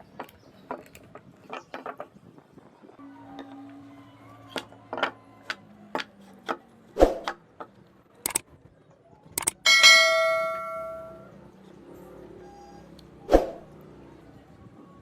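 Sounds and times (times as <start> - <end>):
ringing metallic note: 9.7 - 11.3.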